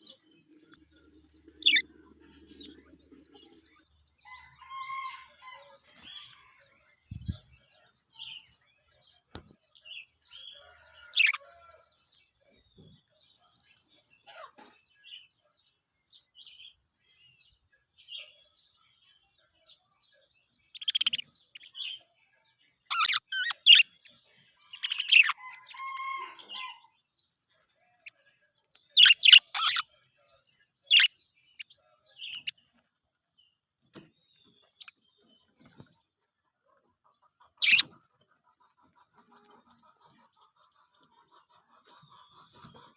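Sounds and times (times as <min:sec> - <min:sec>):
budgerigars chirping: 0:01.0 - 0:03.6, 0:11.2 - 0:11.4, 0:20.7 - 0:22.0, 0:22.9 - 0:24.1, 0:24.7 - 0:26.8, 0:28.9 - 0:29.9, 0:30.9 - 0:31.7, 0:32.3 - 0:32.6, 0:37.3 - 0:42.9.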